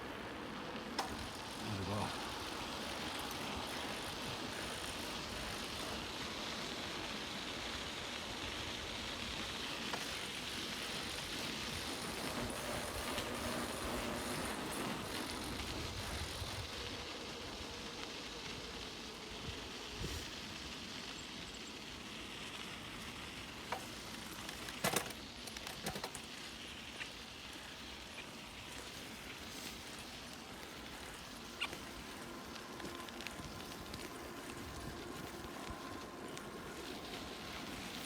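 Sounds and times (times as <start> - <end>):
bicycle tyre and wind noise: 0.0 - 38.0
bike knocks and rattles: 23.7 - 26.4.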